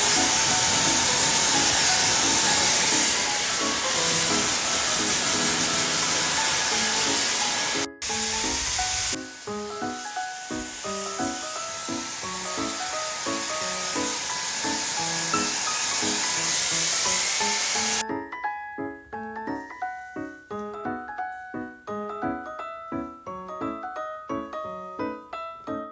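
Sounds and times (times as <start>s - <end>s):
hair dryer blowing: 0.0s - 18.0s
light background music: 0.0s - 25.9s.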